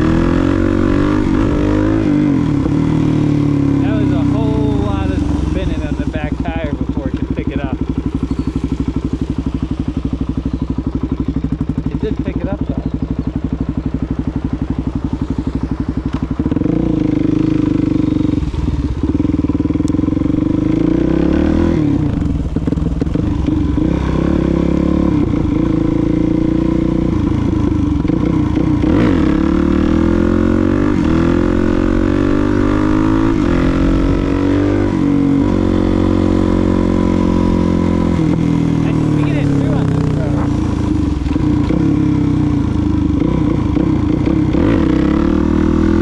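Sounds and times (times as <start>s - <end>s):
motorcycle engine accelerating: 0.0s - 46.0s.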